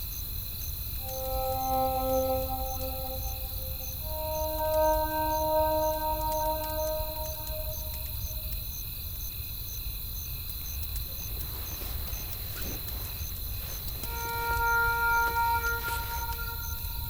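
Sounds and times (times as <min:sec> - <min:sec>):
crickets chirping: 0:00.0 - 0:17.0
soft sustained music tones: 0:01.0 - 0:08.6, 0:14.0 - 0:17.0.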